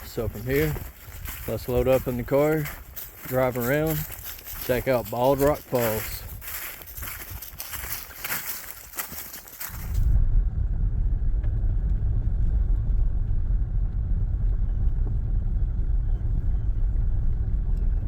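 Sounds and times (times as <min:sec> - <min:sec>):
car engine and road rumble: 0:07.0 - 0:18.0.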